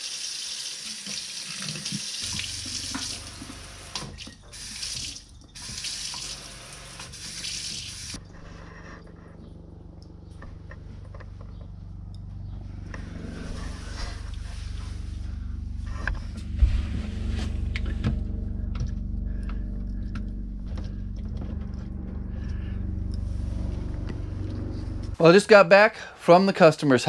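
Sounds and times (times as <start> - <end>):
vehicle engine and road rumble: 8.2 - 25.2.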